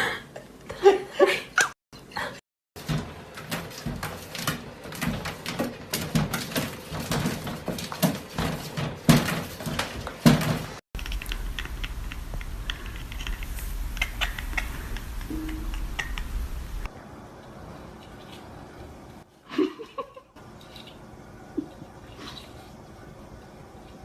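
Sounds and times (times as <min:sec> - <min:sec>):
clattering and knocking: 0:02.8 - 0:16.9
steady low hum: 0:11.0 - 0:19.3.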